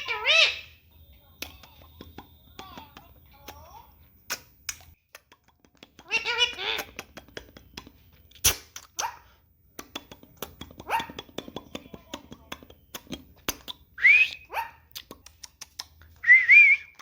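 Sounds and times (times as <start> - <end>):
parrot squawking: 0.0 - 0.8, 6.0 - 7.0, 10.8 - 11.2, 14.0 - 14.9.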